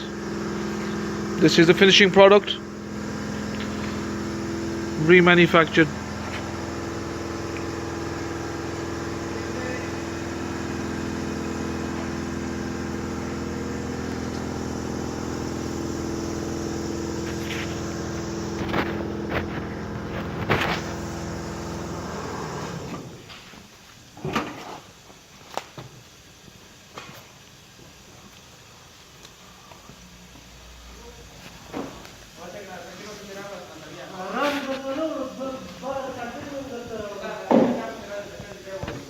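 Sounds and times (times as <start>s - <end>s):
motor humming: 0.0s - 23.2s.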